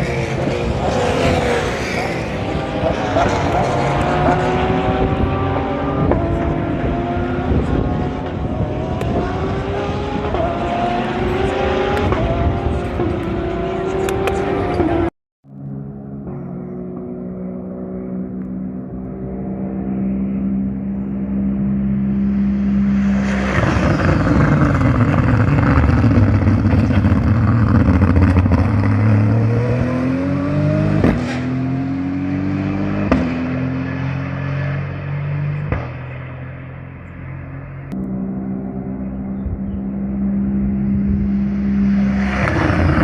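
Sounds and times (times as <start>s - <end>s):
engine exhaust cracks: 0.0s - 19.4s
race car engines: 0.0s - 43.0s
race car passing by: 0.0s - 43.0s.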